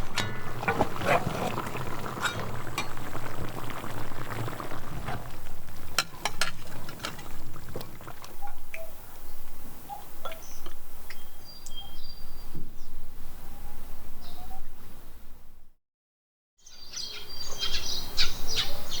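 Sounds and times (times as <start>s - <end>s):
liquid sloshing and bubbling: 0.0s - 9.6s.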